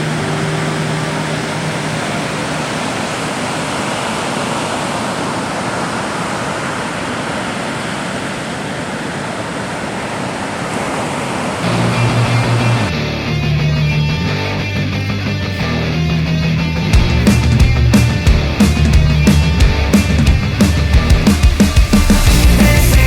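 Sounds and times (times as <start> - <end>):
ocean surf rushing: 0.0 - 13.0, 17.1 - 23.0.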